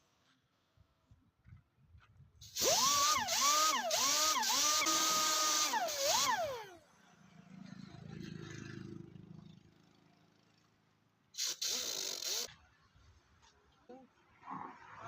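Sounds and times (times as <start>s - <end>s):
air-powered rotary tool hissing: 2.4s - 6.8s, 11.4s - 12.5s.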